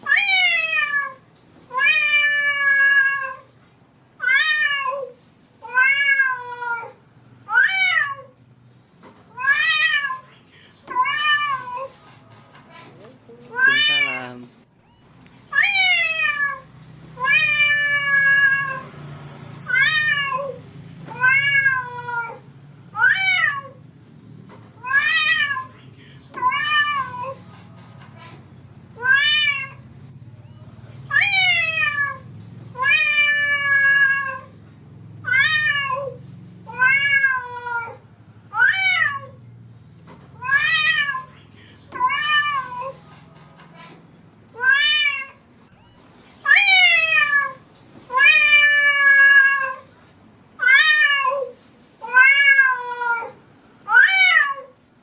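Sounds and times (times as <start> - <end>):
cat meowing: 0.0 - 3.5, 4.2 - 8.4, 9.3 - 10.3, 10.9 - 11.9, 13.4 - 18.9, 19.6 - 23.8, 24.8 - 25.7, 26.3 - 27.5, 29.0 - 29.8, 30.4 - 34.6, 35.2 - 39.4, 40.4 - 41.3, 41.9 - 43.0, 44.5 - 49.9, 50.6 - 54.8.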